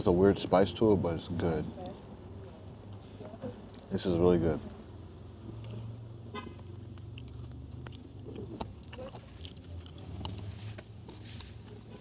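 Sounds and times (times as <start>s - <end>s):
steady low hum: 0.0s - 12.0s
person chewing: 5.4s - 12.0s.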